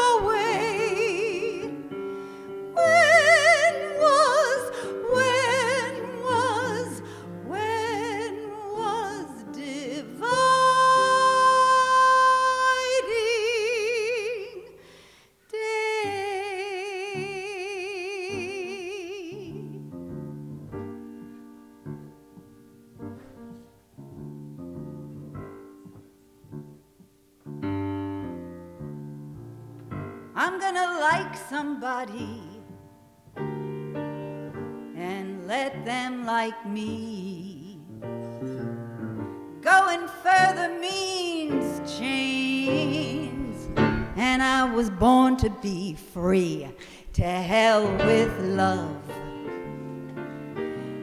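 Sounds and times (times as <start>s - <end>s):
woman singing with vibrato: 0.0s - 19.8s, 30.4s - 32.8s, 34.9s - 37.9s, 39.6s - 49.9s
slow piano chords: 0.0s - 51.0s.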